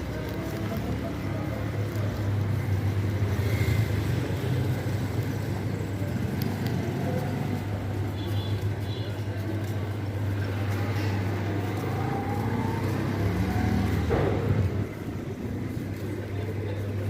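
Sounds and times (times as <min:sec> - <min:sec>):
low vehicle rumble: 0:08.7 - 0:17.0
car passing: 0:09.4 - 0:17.0.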